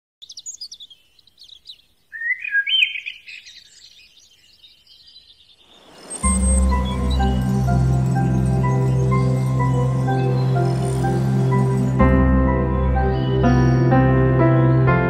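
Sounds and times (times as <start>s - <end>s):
bird warbling: 0.2s - 6.3s
birds chirping: 0.2s - 14.9s
music with deep bass: 6.2s - 15.0s.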